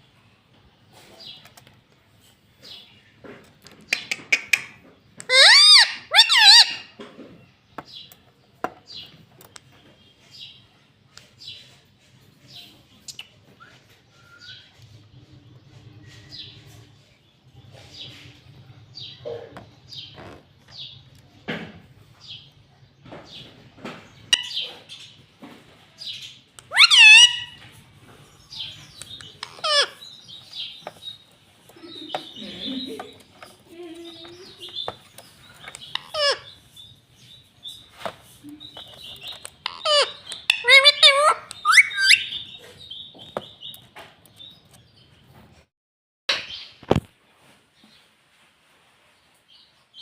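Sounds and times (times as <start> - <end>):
parrot chirping: 3.9 - 6.9, 24.2 - 25.2, 26.0 - 27.8, 28.4 - 33.6, 34.2 - 37.0, 37.7 - 43.8
parakeet shrill calls: 5.3 - 6.9, 26.7 - 27.7, 28.5 - 31.0, 35.6 - 36.6, 38.8 - 42.6
soft parakeet chirps: 26.6 - 27.6, 28.5 - 31.1, 38.5 - 42.7.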